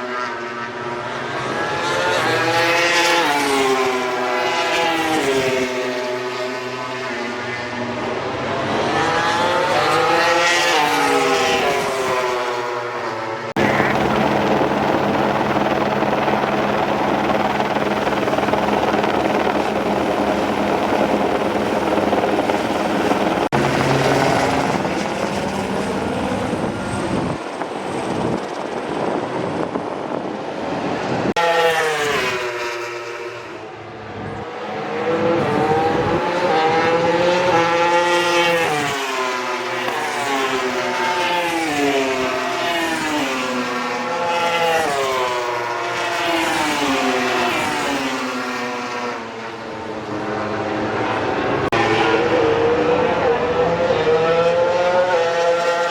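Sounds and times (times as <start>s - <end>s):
race engines passing at speed: 0.0s - 55.9s
loud engine drone: 5.7s - 28.8s, 30.4s - 42.7s, 46.9s - 55.9s.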